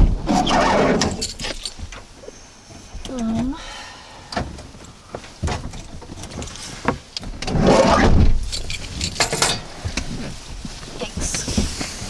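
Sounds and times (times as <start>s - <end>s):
rustle and bump: 4.3s - 12.0s.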